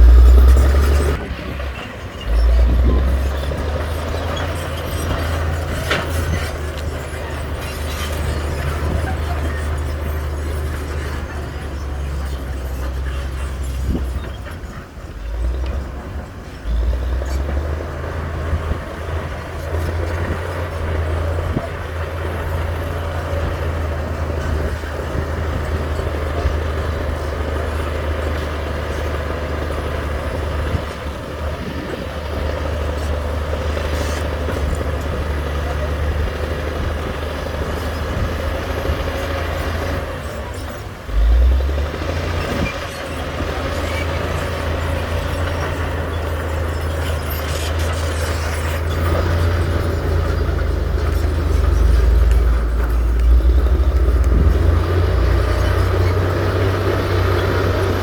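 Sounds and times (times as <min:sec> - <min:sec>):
machinery whine: 0:00.0 - 0:03.6
heavy diesel machinery engine: 0:00.0 - 0:58.0.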